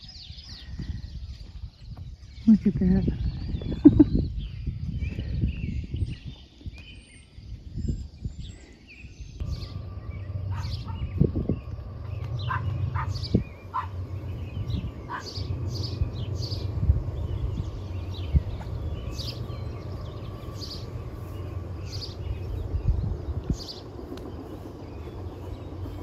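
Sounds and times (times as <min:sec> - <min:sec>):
small birds chirping: 0:00.0 - 0:26.0
steady low rumble: 0:09.2 - 0:26.0.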